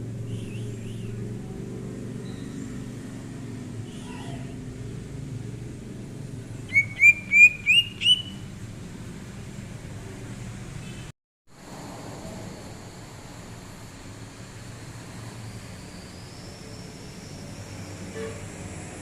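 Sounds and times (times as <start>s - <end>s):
bird chirping: 0.2s - 1.2s, 2.2s - 2.8s, 6.6s - 8.5s.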